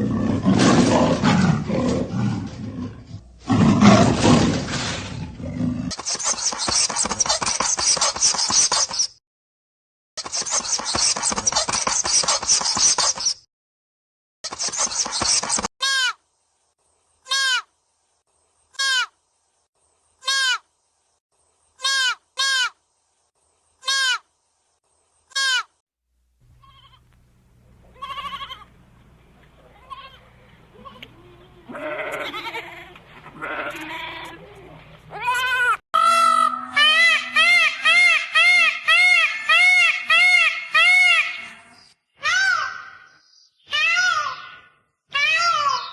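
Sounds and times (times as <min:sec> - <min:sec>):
low steady hum: 0:26.2 - 0:35.2
noisier animal calls: 0:26.6 - 0:27.0, 0:27.9 - 0:28.7, 0:29.6 - 0:45.9.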